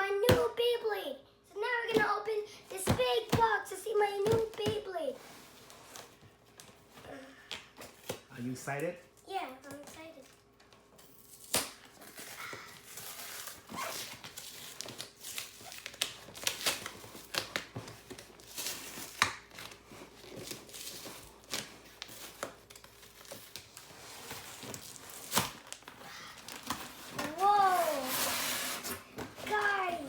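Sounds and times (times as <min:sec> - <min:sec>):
packaging tearing and crumpling: 0:11.2 - 0:29.0.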